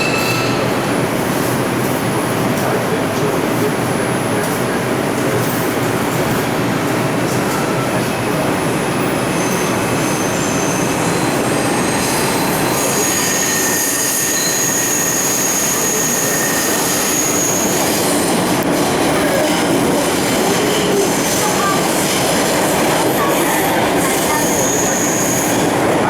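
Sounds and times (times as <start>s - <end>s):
high wheel squeal: 0.0s - 1.0s, 7.6s - 18.4s, 23.1s - 26.0s
subway train rumbling on rails: 0.0s - 26.0s.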